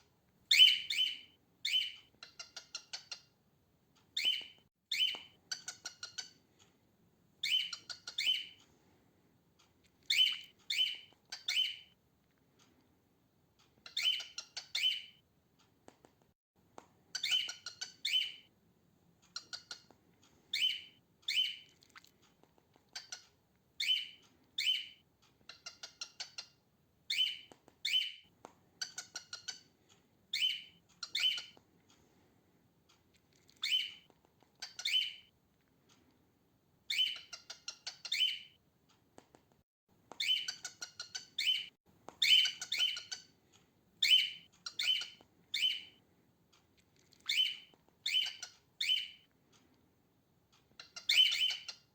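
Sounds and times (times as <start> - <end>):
cockatiel chirping: 0.5 - 3.4, 4.2 - 6.4, 7.4 - 8.6, 10.0 - 12.0, 13.8 - 15.2, 17.1 - 18.5, 19.3 - 19.9, 20.5 - 21.8, 22.9 - 28.2, 28.8 - 29.7, 30.3 - 31.6, 33.5 - 35.3, 36.9 - 38.6, 40.1 - 43.4, 44.0 - 46.0, 47.1 - 49.3, 50.7 - 51.9.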